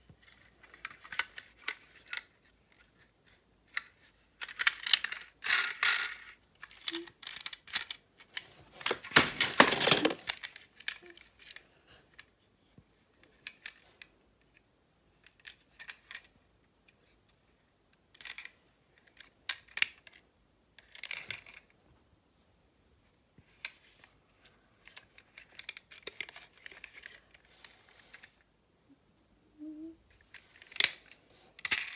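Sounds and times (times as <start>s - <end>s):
small objects scraping: 8.4s - 11.2s
small objects clicking: 8.8s - 11.6s.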